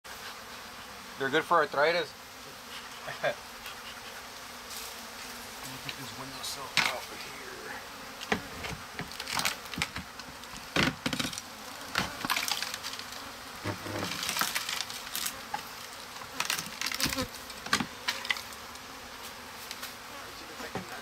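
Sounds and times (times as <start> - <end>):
honeybees buzzing: 0.1 - 21.0
wood cracking and splintering: 8.6 - 18.5.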